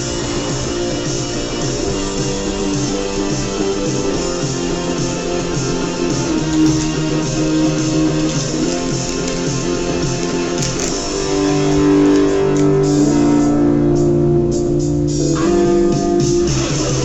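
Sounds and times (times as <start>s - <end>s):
guitar background music: 0.0s - 17.0s.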